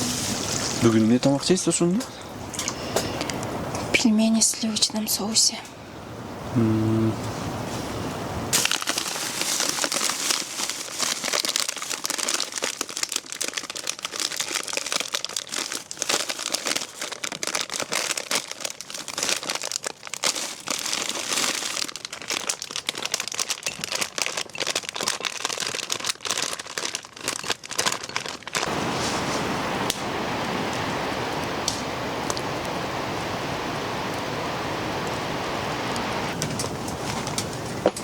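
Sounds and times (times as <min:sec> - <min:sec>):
plastic wrapping crinkling: 0:08.5 - 0:29.4.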